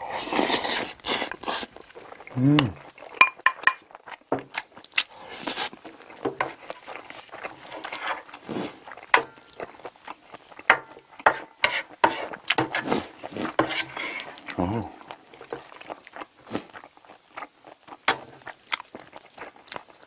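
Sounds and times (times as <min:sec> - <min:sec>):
spoon scraping a dish: 0:00.0 - 0:01.7, 0:05.1 - 0:05.8, 0:07.6 - 0:08.7, 0:11.2 - 0:14.4
wet chewing: 0:00.0 - 0:20.0.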